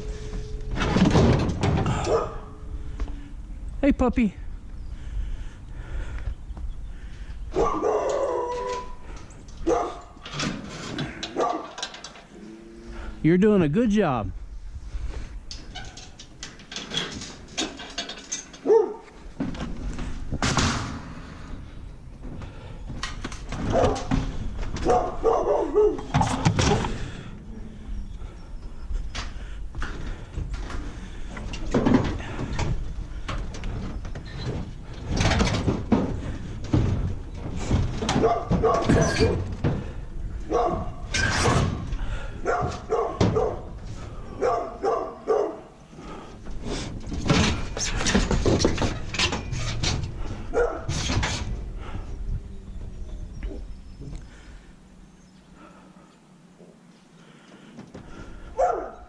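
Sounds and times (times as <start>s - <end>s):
knocks and clatter: 0.3s - 2.2s, 29.8s - 40.0s, 46.4s - 51.6s
dog barking: 2.0s - 2.5s, 7.5s - 8.9s, 9.6s - 10.2s, 11.4s - 11.7s, 18.6s - 19.1s, 23.7s - 24.1s, 24.8s - 26.1s, 38.2s - 39.4s, 40.5s - 41.0s, 42.4s - 43.7s, 44.4s - 45.7s, 50.5s - 50.9s, 58.6s - 59.0s
dog yelping: 7.6s - 9.0s, 24.8s - 26.1s.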